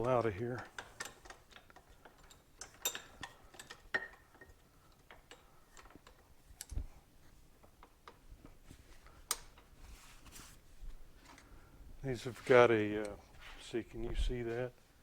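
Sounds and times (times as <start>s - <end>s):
hand tools clicking and tapping: 0.0s - 6.8s.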